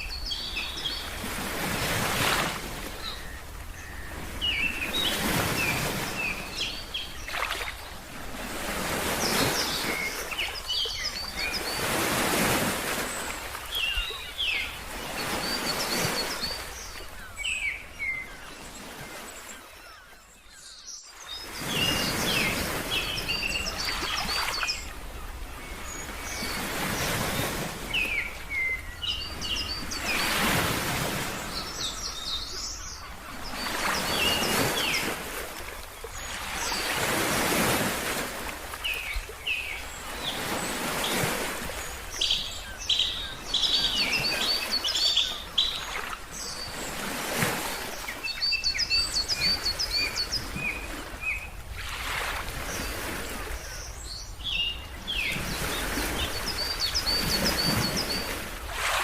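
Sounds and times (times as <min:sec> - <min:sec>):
ocean waves washing: 0:00.0 - 0:20.0, 0:21.2 - 0:59.0
small birds chirping: 0:13.2 - 0:24.9, 0:25.7 - 0:35.2, 0:38.8 - 0:47.0, 0:47.8 - 0:51.5.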